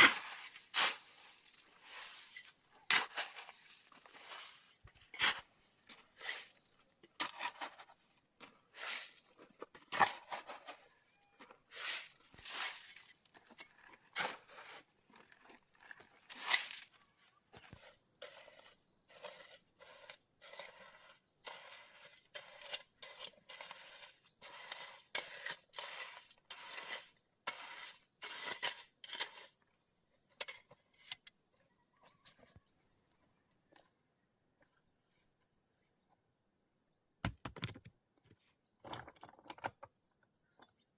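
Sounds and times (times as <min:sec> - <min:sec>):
scraping strokes: 0:00.0 - 0:08.0, 0:08.7 - 0:14.9, 0:17.6 - 0:29.6
faint bird chirps: 0:01.0 - 0:26.4, 0:28.0 - 0:37.2.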